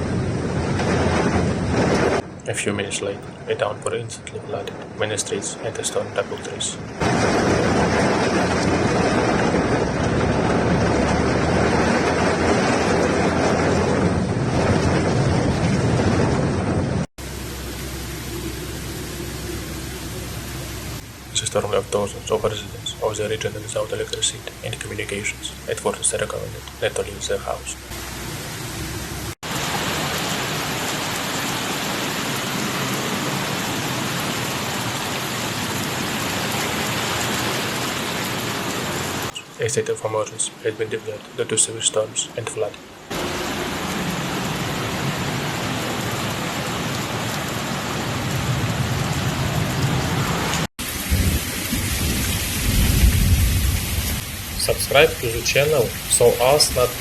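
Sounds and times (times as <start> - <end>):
storm wind and heavy rain: 0.0 - 57.0
steady hiss: 54.4 - 57.0.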